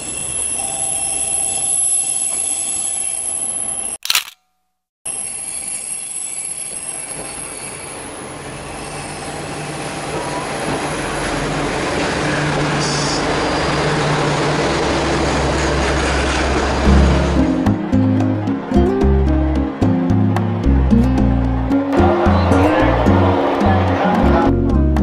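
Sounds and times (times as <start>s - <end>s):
high squeal: 5.1s - 9.8s
train wheels on rails: 5.1s - 17.4s.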